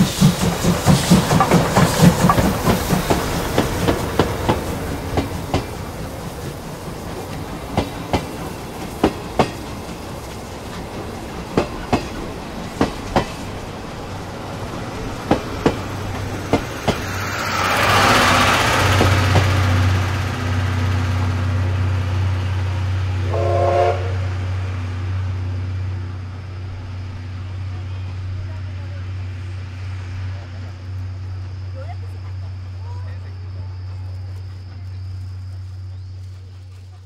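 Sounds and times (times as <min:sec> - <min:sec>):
train wheels clacking over rail joints: 0:00.0 - 0:21.5.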